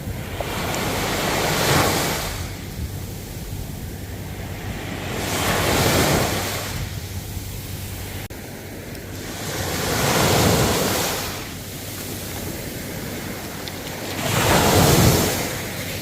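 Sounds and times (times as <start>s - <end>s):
ocean waves breaking on shore: 0.0s - 16.0s.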